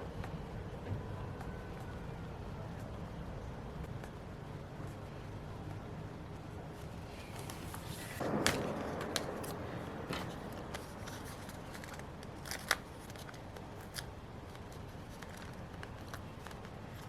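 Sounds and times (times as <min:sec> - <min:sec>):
paper rustling: 0:06.7 - 0:17.0.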